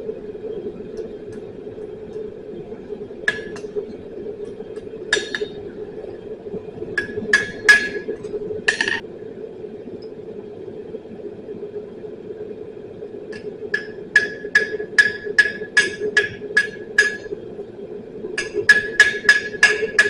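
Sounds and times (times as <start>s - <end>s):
steady hum: 0.0s - 20.0s
hammer striking steel on anvil: 13.8s - 17.3s, 18.4s - 20.0s.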